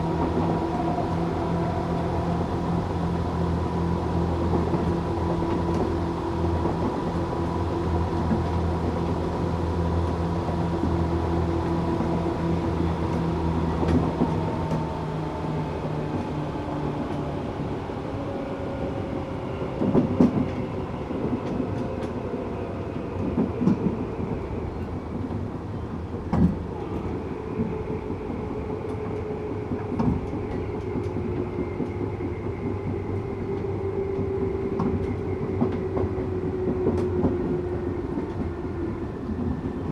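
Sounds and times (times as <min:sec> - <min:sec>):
train motors humming and whining: 0:00.0 - 0:39.9.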